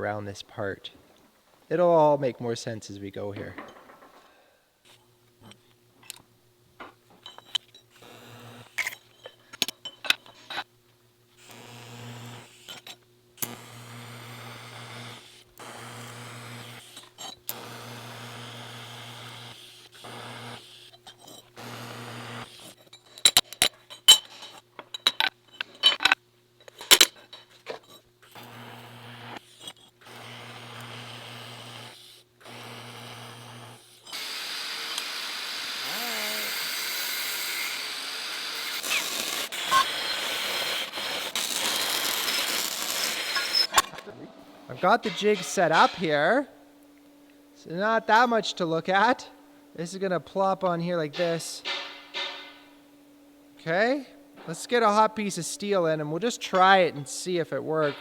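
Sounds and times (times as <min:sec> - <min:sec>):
metal tools clinking and scraping: 0:03.4 - 0:04.3, 0:07.1 - 0:07.9, 0:08.8 - 0:10.7, 0:22.8 - 0:28.1, 0:42.3 - 0:44.1, 0:44.7 - 0:46.5, 0:50.5 - 0:52.8, 0:56.2 - 0:58.0
electrical hum: 0:34.4 - 0:58.0.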